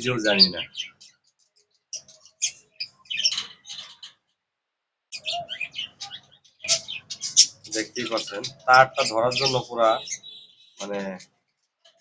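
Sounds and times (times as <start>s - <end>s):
budgerigars chirping: 0.0s - 1.2s, 1.9s - 4.2s, 5.1s - 11.2s.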